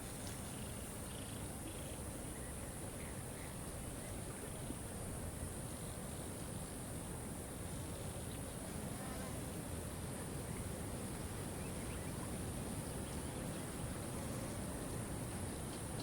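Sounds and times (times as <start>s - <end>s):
faint bird chirps: 0.4s - 4.8s.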